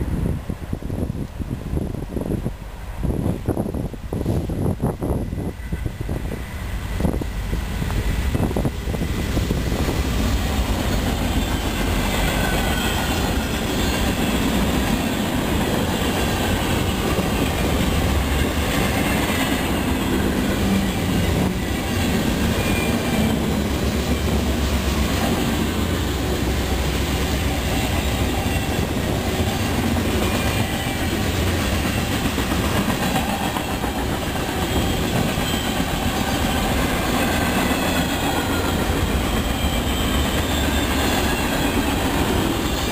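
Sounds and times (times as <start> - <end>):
freight train rolling on rails: 0.0 - 42.9
faint wheel squeal: 37.6 - 42.9.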